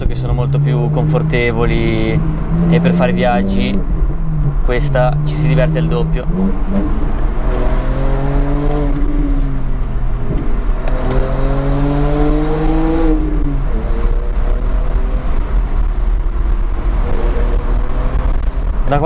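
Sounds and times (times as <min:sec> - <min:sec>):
car engine accelerating: 0:00.0 - 0:19.0
road and wind rumble: 0:00.0 - 0:19.0.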